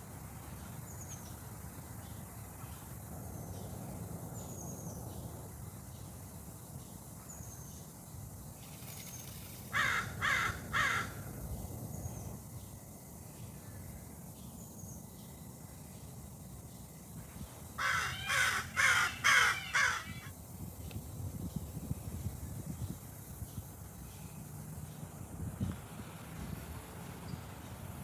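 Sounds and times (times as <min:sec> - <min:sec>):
loud harsh bird calls: 0:09.7 - 0:11.2, 0:17.8 - 0:20.3.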